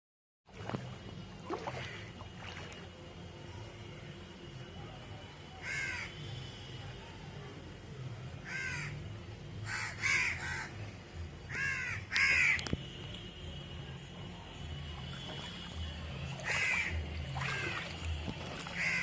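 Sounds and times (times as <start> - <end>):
crow cawing: 5.6 - 6.1, 8.4 - 9.0, 9.6 - 10.7, 11.5 - 12.6, 16.4 - 17.8, 18.8 - 19.0.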